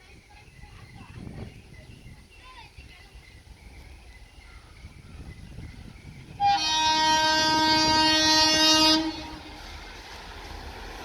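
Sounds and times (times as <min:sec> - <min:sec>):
locomotive air horn blast: 0:06.4 - 0:09.7.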